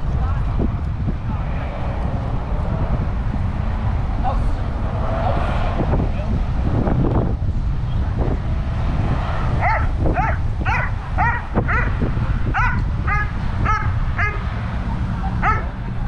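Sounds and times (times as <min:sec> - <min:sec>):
wind rumble on microphone: 0:00.0 - 0:16.0
dog barking: 0:09.6 - 0:14.5, 0:15.4 - 0:15.8.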